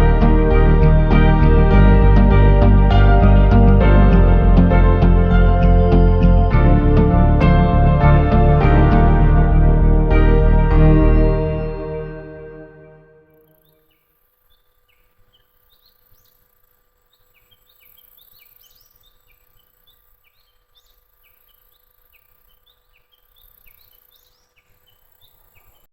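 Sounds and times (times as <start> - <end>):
faint low rumble: 0.0 - 13.4
bird chirping: 10.0 - 25.9.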